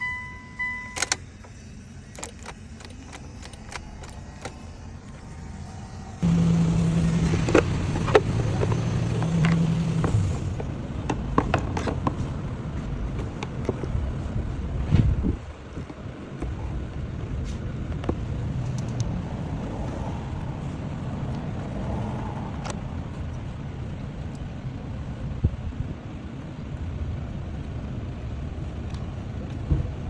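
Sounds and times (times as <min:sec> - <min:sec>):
short electronic beep: 0:00.0 - 0:01.2
car engine starting and running: 0:00.0 - 0:30.0.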